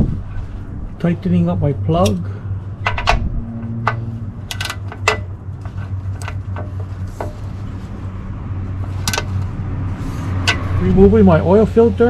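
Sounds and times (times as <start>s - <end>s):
steady low hum: 0.0s - 12.0s
metallic tool clicks: 2.8s - 5.3s.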